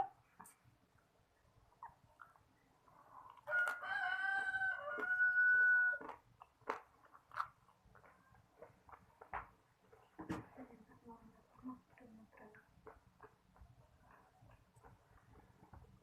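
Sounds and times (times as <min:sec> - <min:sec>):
chewing clicks: 0:01.7 - 0:09.3
rooster crowing: 0:03.5 - 0:06.1.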